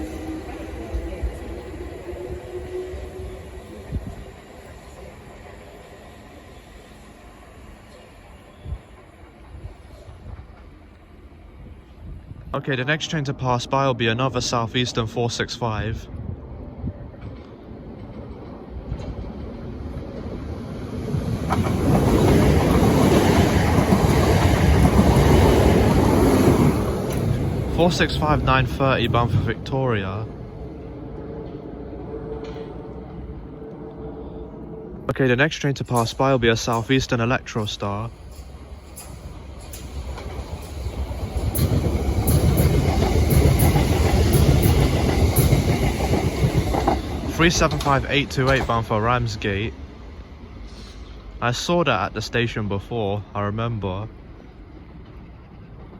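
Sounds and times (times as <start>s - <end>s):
electric train passing rumble: 0.0s - 55.9s
wheels clicking on track: 36.0s - 49.4s.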